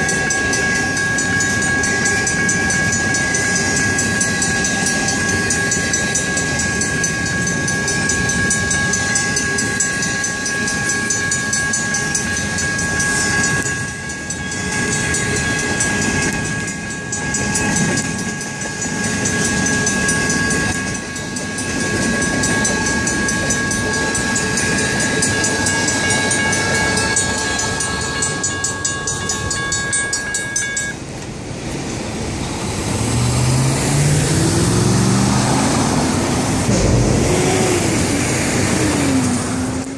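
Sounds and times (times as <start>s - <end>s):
electronic crossing bell: 0.0s - 31.1s
mechanical crossing bell: 0.0s - 31.2s
passing train rumble: 0.0s - 39.9s
vehicle engine pulling away: 32.4s - 39.9s.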